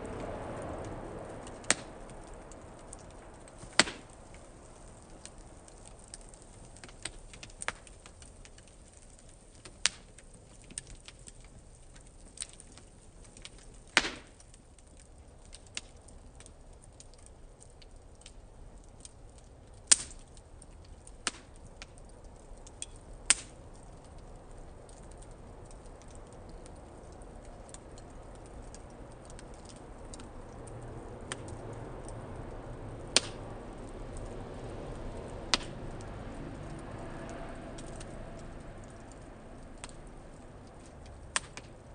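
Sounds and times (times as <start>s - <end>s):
fire hissing: 0.0s - 8.8s
wood fire crackling and popping: 0.0s - 41.9s.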